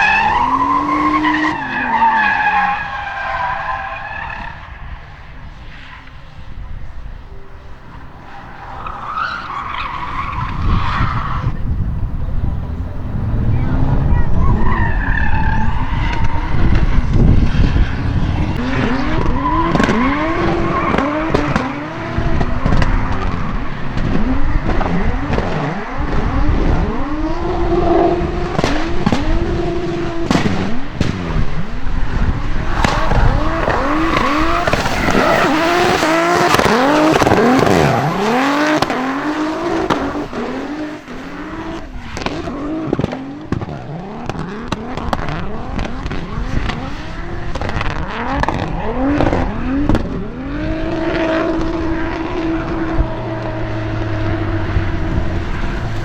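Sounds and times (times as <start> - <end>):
car engines revving hard: 0.0 - 56.0
tyres squealing and skidding: 0.0 - 56.0
sharp cracks: 28.4 - 41.6.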